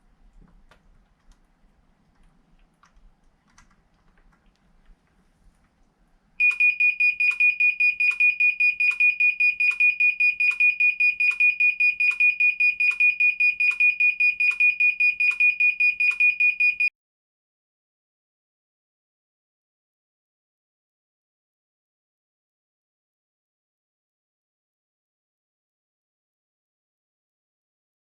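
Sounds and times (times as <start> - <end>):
dishwasher alarm beeping: 6.4 - 16.9.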